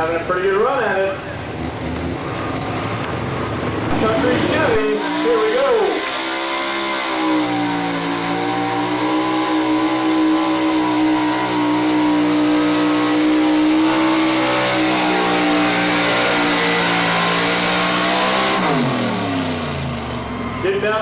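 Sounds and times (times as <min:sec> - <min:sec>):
truck engine at high revs: 0:00.0 - 0:21.0.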